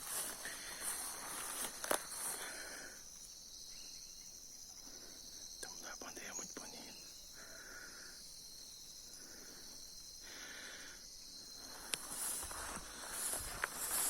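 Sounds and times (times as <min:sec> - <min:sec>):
rustling in dry leaves: 0:00.0 - 0:02.6, 0:11.8 - 0:14.0
high-pitched insect chorus: 0:00.0 - 0:14.0
insect buzzing calls: 0:00.0 - 0:14.0.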